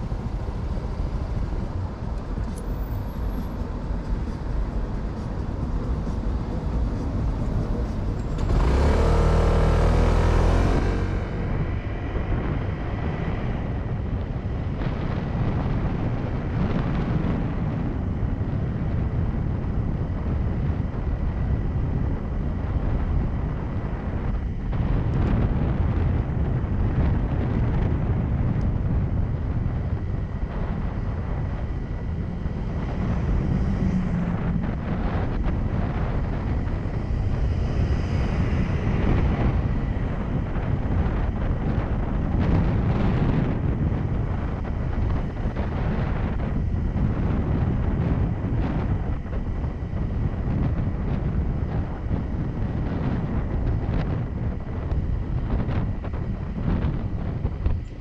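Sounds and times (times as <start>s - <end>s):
motorcycle engine running: 0.0s - 58.0s
wind noise on microphone: 0.0s - 58.0s.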